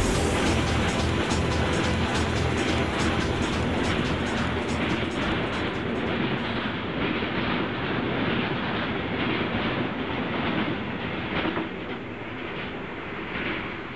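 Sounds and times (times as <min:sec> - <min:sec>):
freight train wheels clattering: 0:00.0 - 0:06.8.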